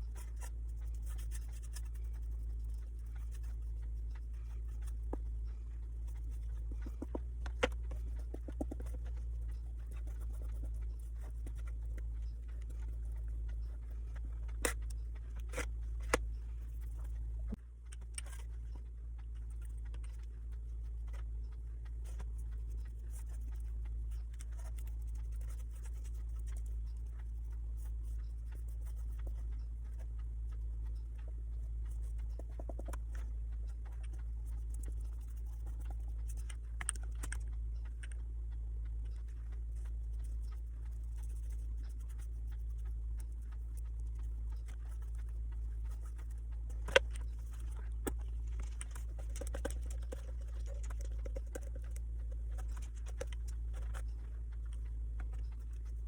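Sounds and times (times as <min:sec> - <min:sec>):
faint scratching: 0:00.0 - 0:56.0
light clicks and taps: 0:00.0 - 0:56.0
steady low hum: 0:00.0 - 0:56.0.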